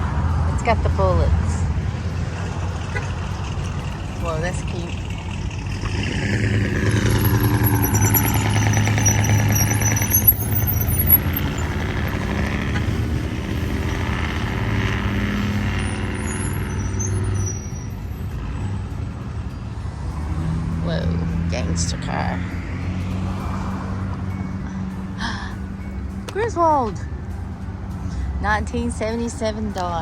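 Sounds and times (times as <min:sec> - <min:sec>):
vehicle engines passing: 0:00.0 - 0:30.0.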